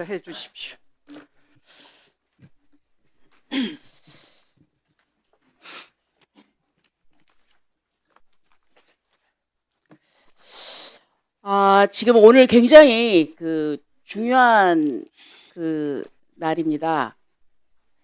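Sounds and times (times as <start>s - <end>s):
person coughing: 3.5s - 3.9s
breaths close to microphone: 3.8s - 4.7s, 15.1s - 15.6s.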